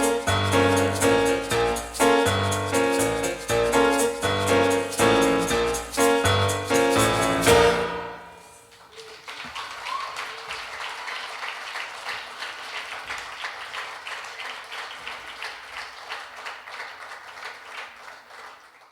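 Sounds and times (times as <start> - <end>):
piano chord: 0.0 - 8.8
audience applauding: 7.5 - 18.9.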